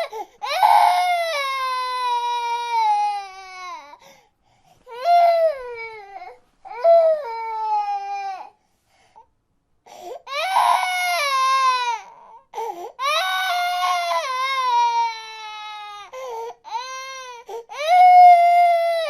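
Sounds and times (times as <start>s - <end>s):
baby crying: 0.0s - 4.0s, 4.9s - 8.6s, 10.2s - 19.0s.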